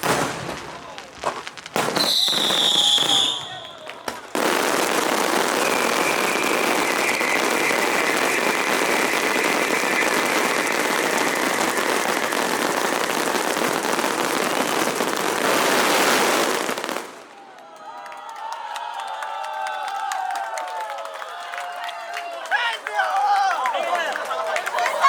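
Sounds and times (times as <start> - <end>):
fireworks crackling: 0.0 - 17.5
high whistle: 1.9 - 3.9, 5.2 - 13.5.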